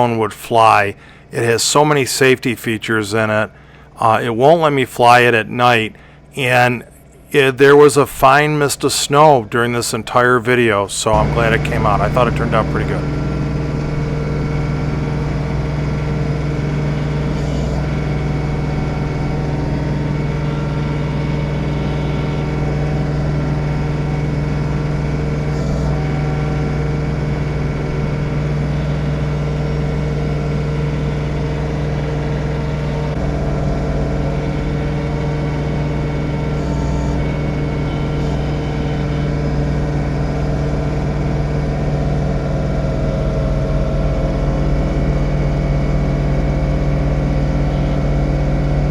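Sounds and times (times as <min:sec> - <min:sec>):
tractor diesel engine running: 0:10.5 - 0:48.9.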